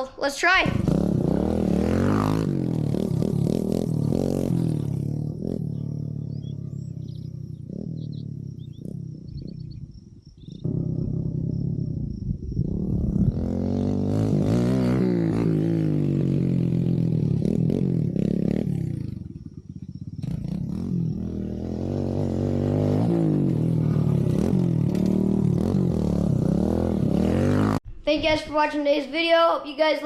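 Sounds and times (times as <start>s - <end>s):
dirt bike engine revving: 0.6s - 27.8s.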